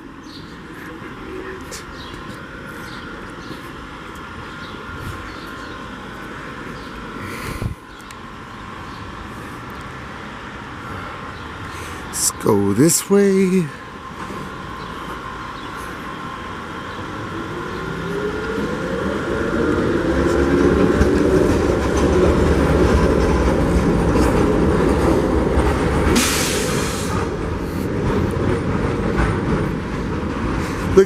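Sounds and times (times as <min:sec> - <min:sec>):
tram passing with motor whine: 0:00.0 - 0:31.0
burst of hiss: 0:26.2 - 0:27.3.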